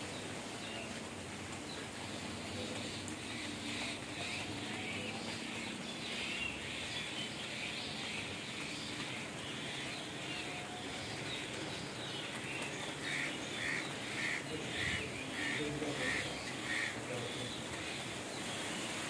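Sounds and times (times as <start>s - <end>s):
birds calling and chirping: 0.0s - 19.0s
steady background hiss: 0.0s - 19.0s.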